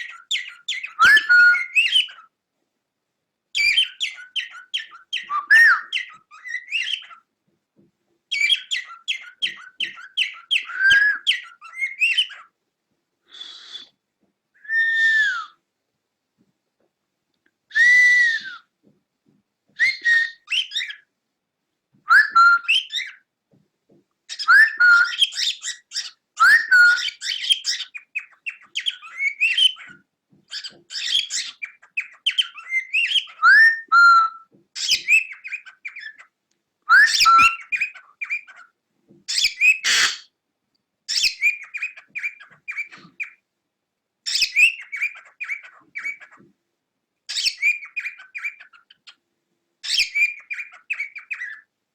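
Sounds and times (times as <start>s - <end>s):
cockatiel chirping and whistling: 0.0s - 2.3s, 3.6s - 7.2s, 8.3s - 12.5s, 14.6s - 15.6s, 17.7s - 18.6s, 19.8s - 21.0s, 22.1s - 23.2s, 24.3s - 36.3s, 36.9s - 38.7s, 39.3s - 40.3s, 41.1s - 43.4s, 44.3s - 46.4s, 47.3s - 49.2s, 49.8s - 51.7s.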